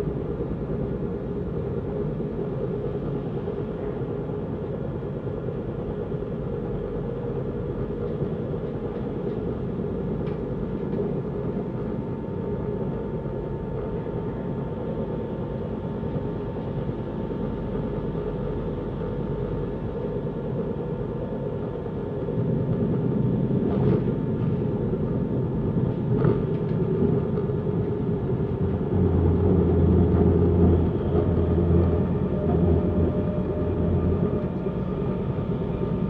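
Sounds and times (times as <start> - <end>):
faint steady whine: 0.0 - 36.0
train wheels rumbling on rail: 0.0 - 36.0.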